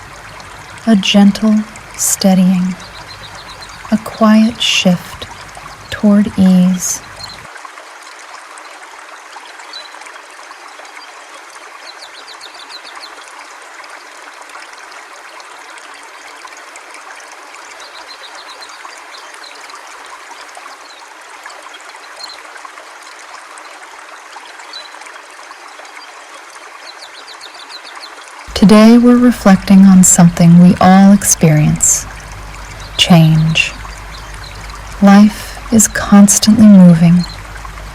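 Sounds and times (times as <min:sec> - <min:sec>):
river water flowing: 0:00.0 - 0:37.9.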